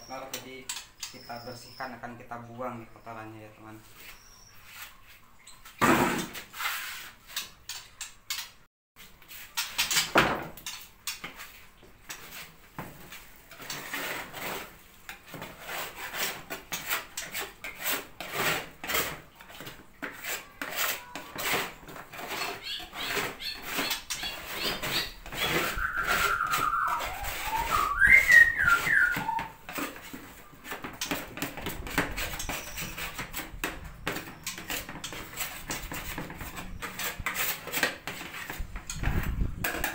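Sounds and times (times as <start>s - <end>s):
gliding whistle-like bird call: 25.4s - 29.6s.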